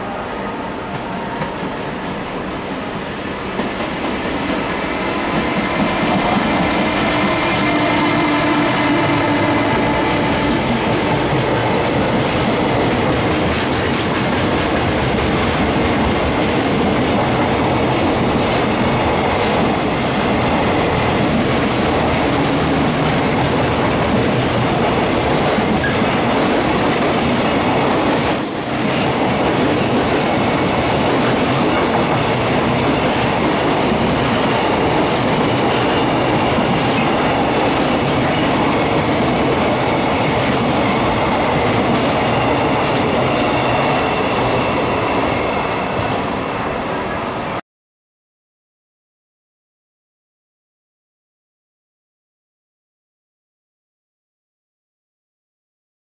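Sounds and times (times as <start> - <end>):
train wheels clattering over rails: 8.9 - 46.3.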